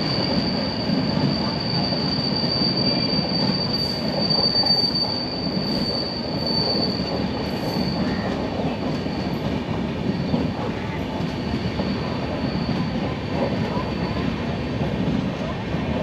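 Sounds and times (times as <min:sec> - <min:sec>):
high wheel squeal: 0:00.0 - 0:09.4, 0:11.5 - 0:14.4
train wheels rumbling on rails: 0:00.0 - 0:16.0.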